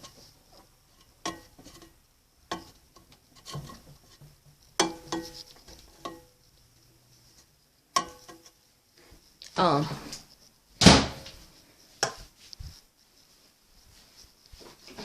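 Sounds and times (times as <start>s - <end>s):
kitchenware clinking and knocking: 3.4s - 6.3s.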